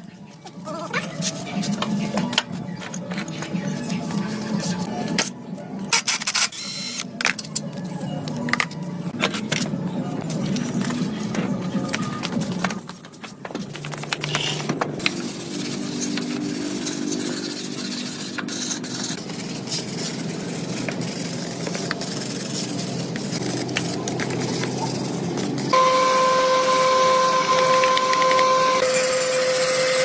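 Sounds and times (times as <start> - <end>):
power tool motor whining: 25.7 - 30.0.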